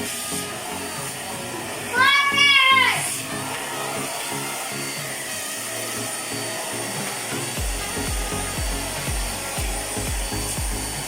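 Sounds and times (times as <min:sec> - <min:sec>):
background music with bass: 0:00.0 - 0:11.0
handheld vacuum cleaner running: 0:00.0 - 0:11.0
thumping beat: 0:07.0 - 0:11.0.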